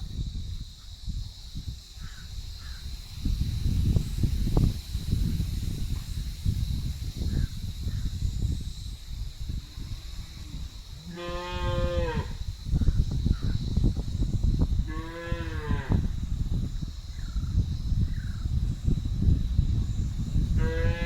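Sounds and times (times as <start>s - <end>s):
high insect-like whine: 0.0s - 21.0s
wind buffeting microphone: 0.0s - 21.0s
faint crow caws: 2.0s - 2.8s.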